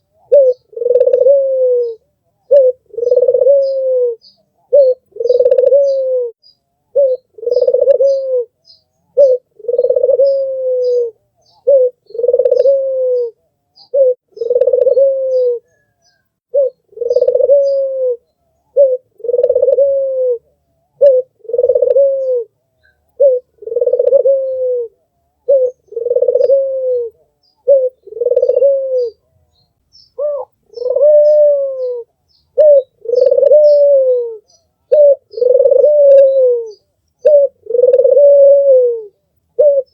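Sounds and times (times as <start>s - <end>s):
small birds chirping: 0.0s - 19.9s, 20.6s - 39.9s
dove cooing: 0.0s - 29.6s, 30.2s - 39.9s.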